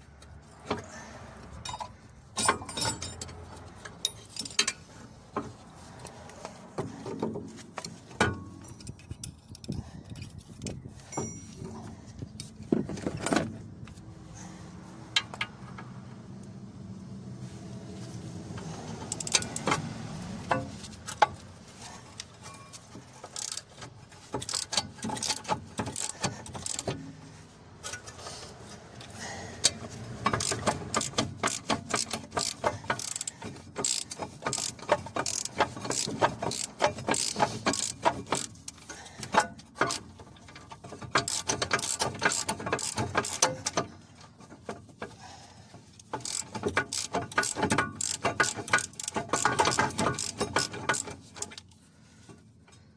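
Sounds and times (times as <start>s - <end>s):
ratchet wrench clicking: 1.6s - 4.9s, 7.8s - 11.4s, 18.6s - 21.4s, 23.2s - 27.1s, 29.6s - 43.8s, 45.9s - 51.8s.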